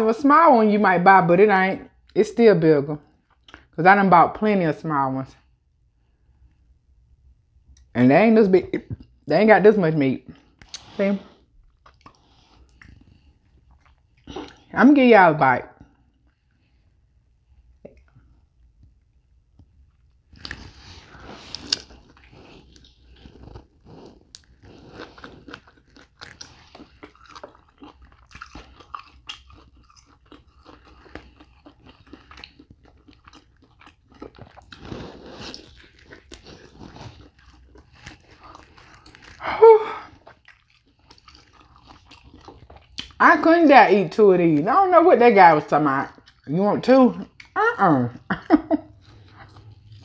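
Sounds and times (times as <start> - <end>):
person chewing: 3.1 - 3.7, 10.3 - 14.7, 17.6 - 43.2, 46.1 - 46.6, 47.2 - 47.6, 48.2 - 50.0
small mouth sounds: 11.8 - 14.7.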